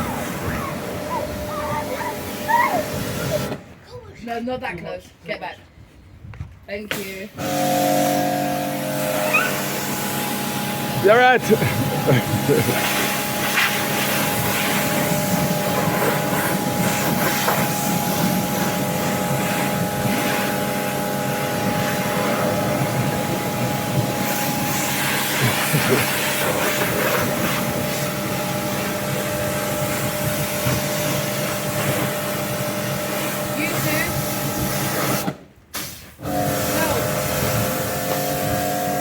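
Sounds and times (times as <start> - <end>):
pressure washer motor humming: 0.0 - 3.6, 7.4 - 35.3, 36.2 - 39.0
water spray hissing: 11.0 - 22.8, 24.2 - 38.9.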